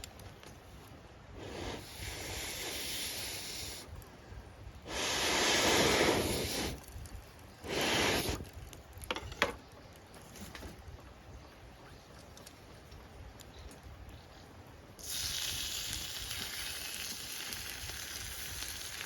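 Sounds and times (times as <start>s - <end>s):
fire crackling: 0.0s - 19.0s
hissing rushes of air: 1.3s - 4.0s, 4.8s - 7.0s, 7.6s - 8.4s.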